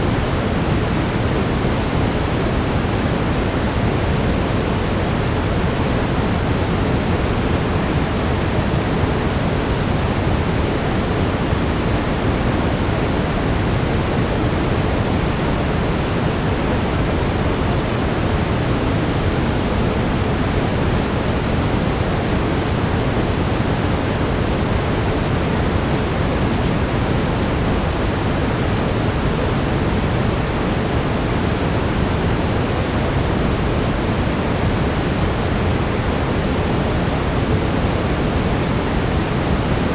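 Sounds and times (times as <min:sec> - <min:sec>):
steady brown noise hiss: 0:00.0 - 0:39.9.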